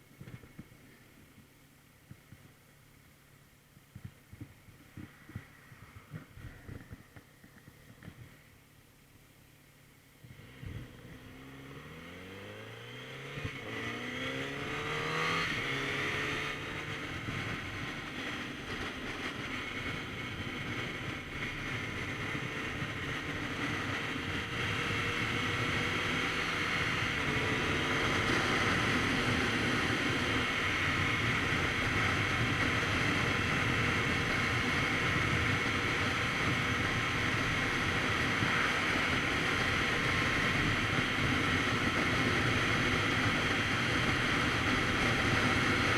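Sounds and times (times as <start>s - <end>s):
wind noise: 3.8s - 8.6s, 13.2s - 45.9s
motorcycle engine accelerating: 10.2s - 45.9s.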